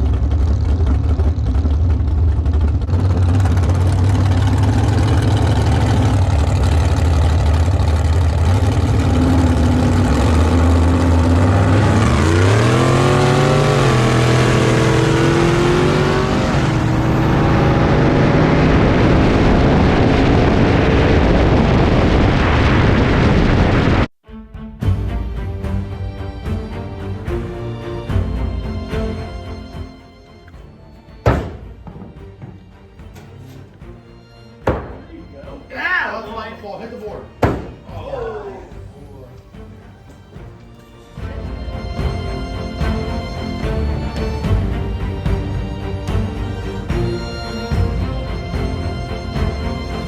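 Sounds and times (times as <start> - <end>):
race car engines idling: 0.0 - 19.4
engine revving sharply: 0.0 - 24.1.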